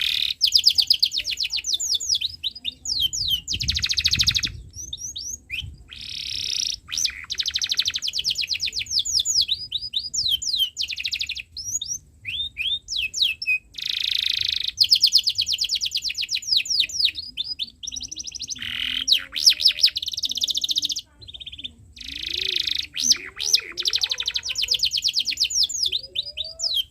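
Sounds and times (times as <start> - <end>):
canary singing: 0.0 - 26.9.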